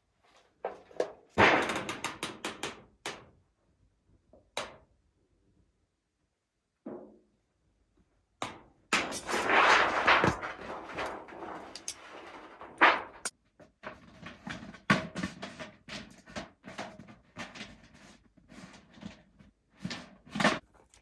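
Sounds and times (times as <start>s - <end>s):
rustling: 9.0s - 13.3s
clicks and knocks of handling: 10.3s - 17.8s.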